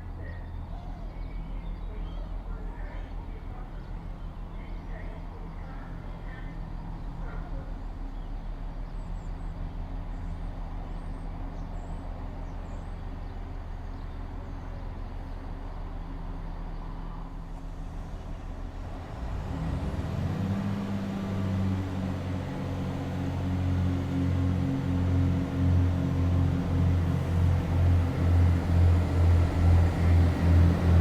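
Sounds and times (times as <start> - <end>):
diesel train engine humming: 0.0 - 31.0.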